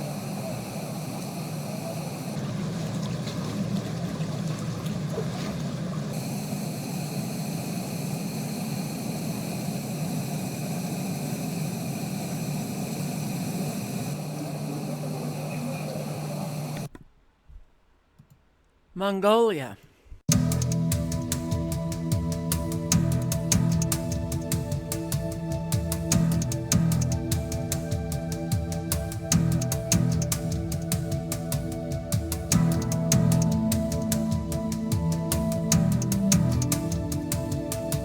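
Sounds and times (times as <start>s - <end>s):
floodwater rushing: 2.4s - 6.2s
steady hum: 6.1s - 16.9s, 20.3s - 38.0s.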